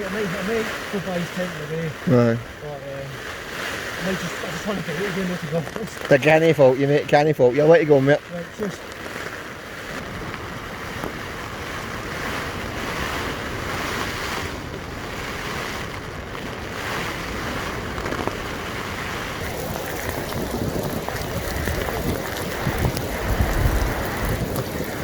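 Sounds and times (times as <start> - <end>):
heavy rain: 0.0 - 25.0
storm wind: 8.8 - 25.0
wind buffeting microphone: 8.9 - 25.0.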